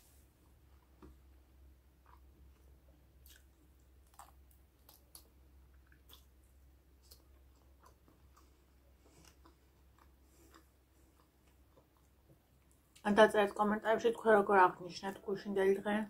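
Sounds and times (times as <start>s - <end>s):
person chewing with mouth clicks: 2.0s - 13.0s.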